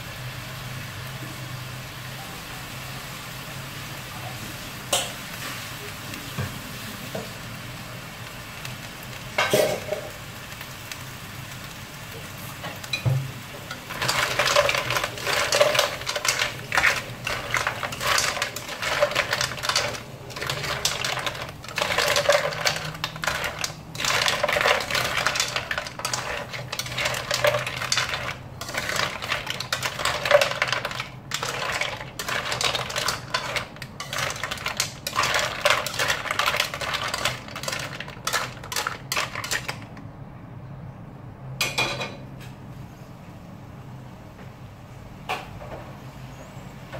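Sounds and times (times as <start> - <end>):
mussel shells clattering in wok: 12.5 - 40.1.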